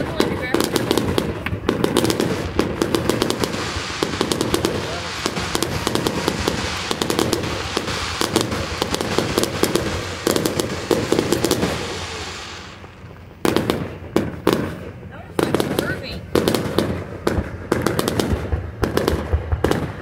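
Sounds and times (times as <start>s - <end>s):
fireworks crackling and popping: 0.0s - 20.0s.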